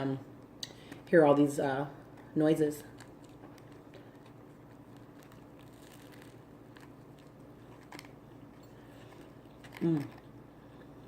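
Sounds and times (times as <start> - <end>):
low steady hum: 0.0 - 11.0
faint chewing crunches: 2.8 - 11.0.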